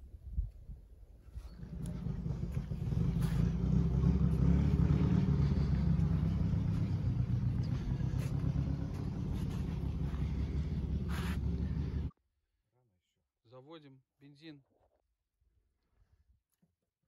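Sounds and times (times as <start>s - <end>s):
vehicle engine rumbling: 1.4s - 12.1s.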